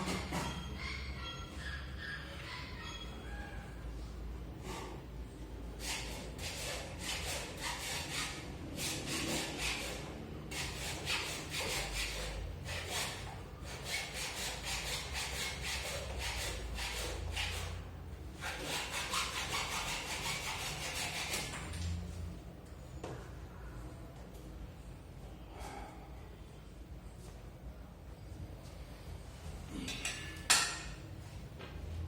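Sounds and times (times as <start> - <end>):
rapid scraping strokes: 5.8 - 21.7.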